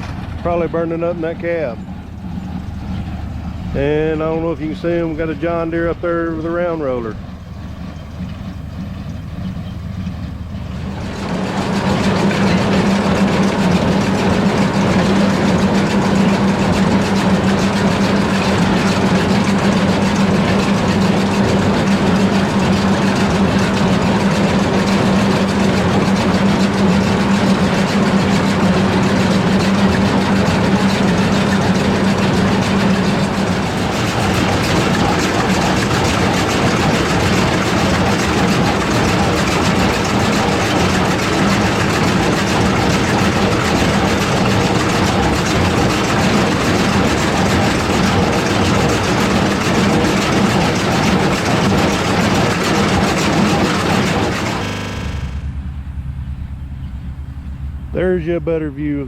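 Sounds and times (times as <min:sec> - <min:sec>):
heavy engine humming: 0:00.0 - 0:59.0.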